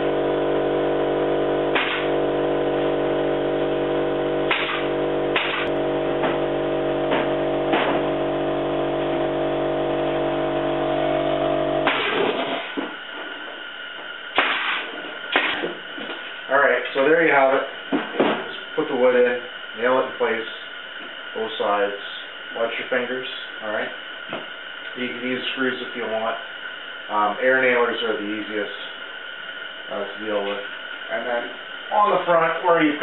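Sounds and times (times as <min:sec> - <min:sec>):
air compressor humming: 0:00.0 - 0:33.0
nail gun firing: 0:01.7 - 0:02.1, 0:04.5 - 0:05.7, 0:11.8 - 0:12.6, 0:14.4 - 0:14.8.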